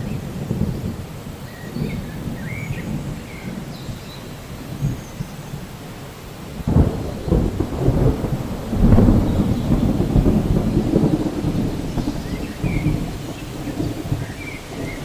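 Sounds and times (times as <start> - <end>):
steady rain: 0.0 - 15.0
thunder rumbling: 0.0 - 15.0
thunder crack: 6.4 - 15.0.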